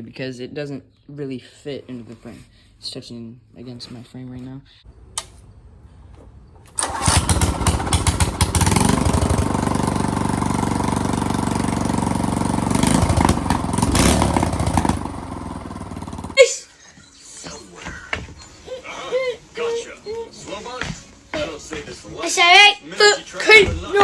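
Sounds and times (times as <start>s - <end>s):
minibike engine revving: 6.7s - 16.4s.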